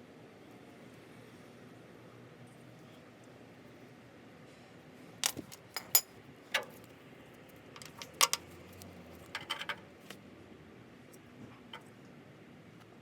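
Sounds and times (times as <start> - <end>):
small metal objects clinking: 5.2 - 6.8, 7.8 - 9.8.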